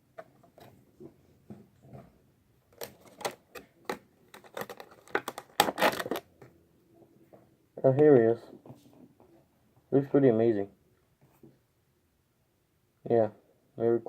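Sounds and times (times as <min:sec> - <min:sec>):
cardboard and plastic packaging crinkling: 0:04.3 - 0:06.3.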